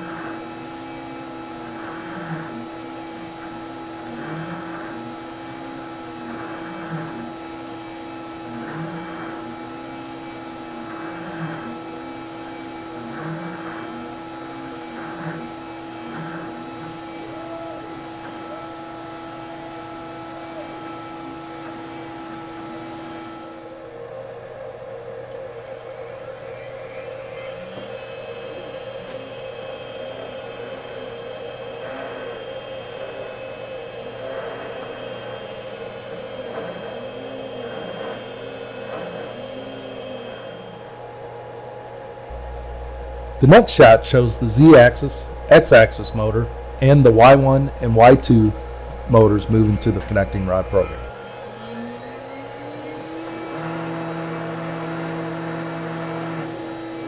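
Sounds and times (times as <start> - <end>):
router spindle whine: 0.0 - 23.6, 25.5 - 40.8, 42.3 - 57.0
stepper motors sweeping pitch: 42.3 - 51.1.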